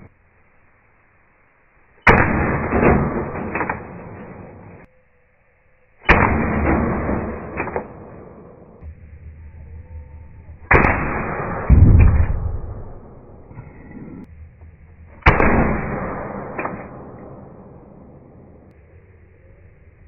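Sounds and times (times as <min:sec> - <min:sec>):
air pistol shots: 0:02.0 - 0:04.9, 0:06.0 - 0:08.8, 0:10.7 - 0:13.5, 0:15.2 - 0:18.7
heavy deep thud: 0:10.7 - 0:13.6.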